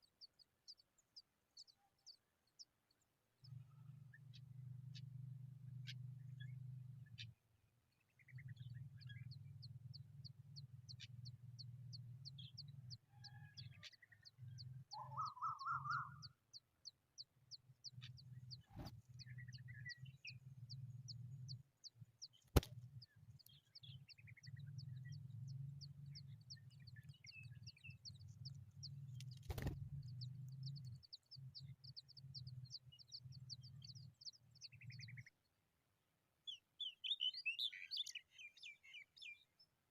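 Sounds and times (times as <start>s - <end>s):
nestlings chirping: 25.8s - 35.2s.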